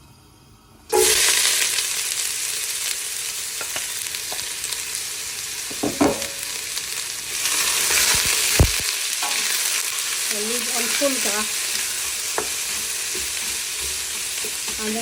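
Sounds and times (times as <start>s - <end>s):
onions sizzling in hot oil: 0.9s - 15.0s
utensil knocking on pan: 5.7s - 6.4s.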